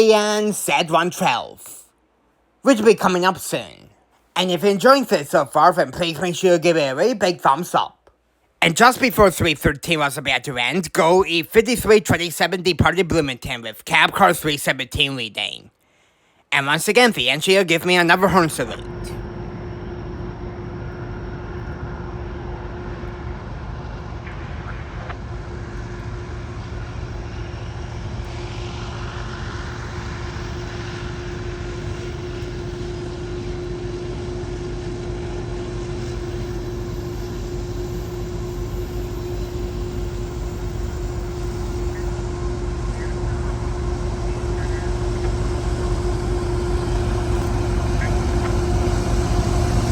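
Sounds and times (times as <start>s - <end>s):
diesel locomotive engine drone: 17.1s - 49.9s.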